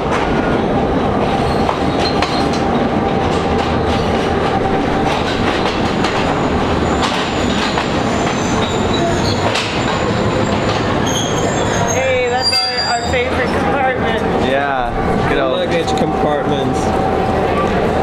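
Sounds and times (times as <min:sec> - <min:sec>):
train rumbling past: 0:00.0 - 0:18.0
high wheel squeal: 0:06.8 - 0:13.7.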